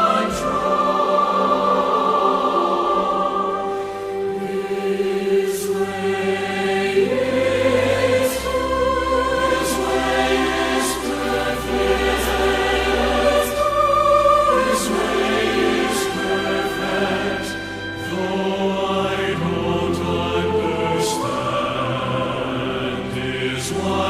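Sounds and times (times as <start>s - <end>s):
choir singing sustained chords: 0.0s - 24.0s.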